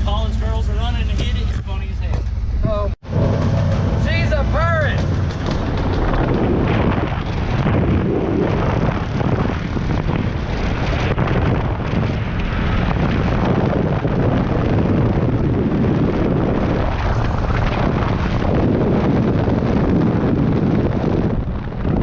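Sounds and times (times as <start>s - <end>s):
bus engine rumbling: 0.0s - 8.7s
wind buffeting microphone: 0.0s - 22.0s.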